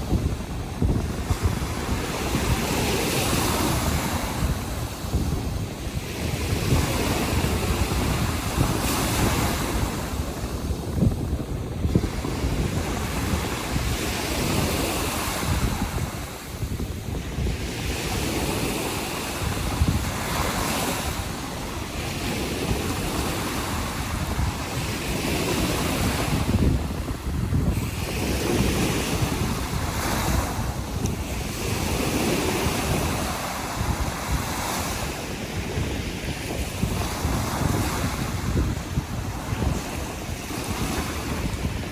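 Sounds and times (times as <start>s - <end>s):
surf breaking on shore: 0.0s - 41.9s
wind buffeting microphone: 0.0s - 41.9s.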